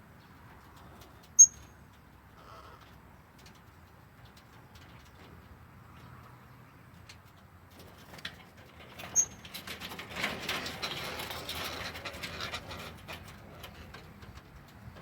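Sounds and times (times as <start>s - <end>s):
parrots calling: 2.4s - 2.8s.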